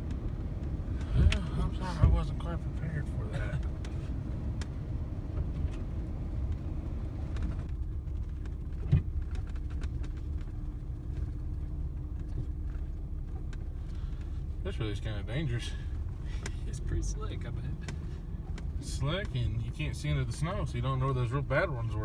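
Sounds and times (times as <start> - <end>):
truck engine and tyres rumbling: 0.0 - 22.0.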